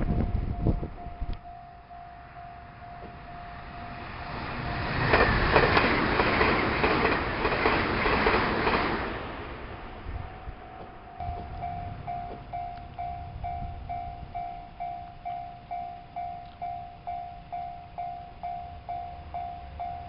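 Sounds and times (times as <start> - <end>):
electric train passing: 0.0 - 20.0
wheels clattering over rail joints: 3.9 - 9.9.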